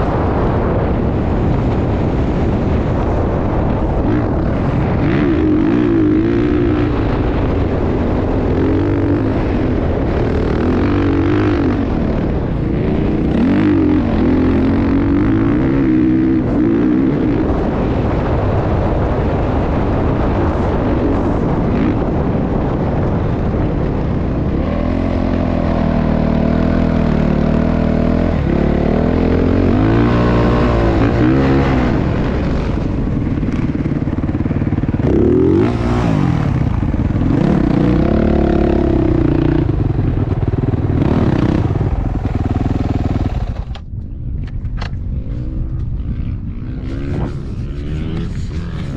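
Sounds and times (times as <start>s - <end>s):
dirt bike engine revving: 1.4s - 43.8s, 45.2s - 48.9s.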